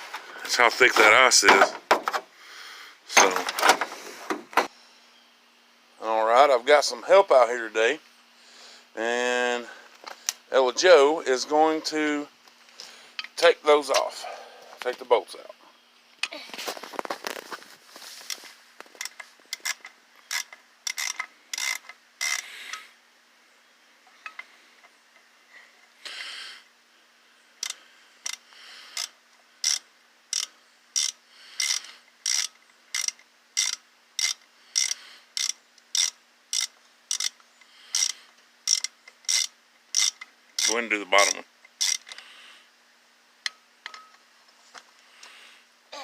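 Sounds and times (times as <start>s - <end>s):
ratchet wrench clicking: 19.5s - 22.8s, 27.6s - 28.4s, 29.0s - 40.7s, 41.7s - 42.2s.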